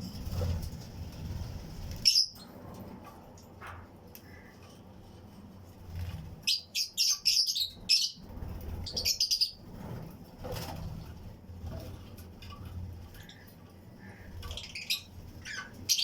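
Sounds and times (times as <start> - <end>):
lovebirds chirping: 1.8 - 2.5, 6.3 - 9.7, 13.1 - 16.0.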